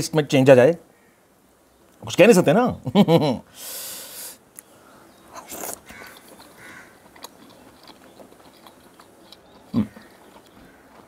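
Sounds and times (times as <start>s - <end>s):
wet chewing with mouth clicks: 5.3s - 11.0s.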